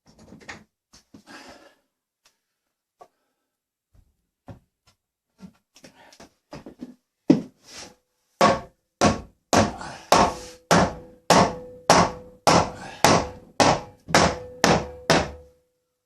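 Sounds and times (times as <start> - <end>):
hammer blows on wood: 8.4 - 15.5.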